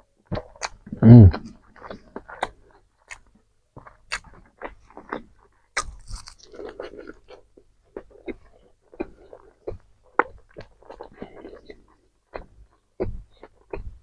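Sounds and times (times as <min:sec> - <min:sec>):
person chewing crispy food: 0:00.2 - 0:14.0.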